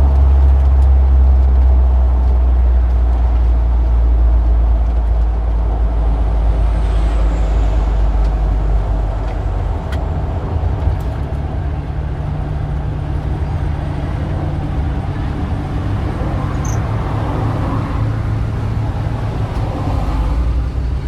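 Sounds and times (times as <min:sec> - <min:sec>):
heavy vehicle engine rumbling: 0:00.0 - 0:21.0
street traffic: 0:00.0 - 0:21.0.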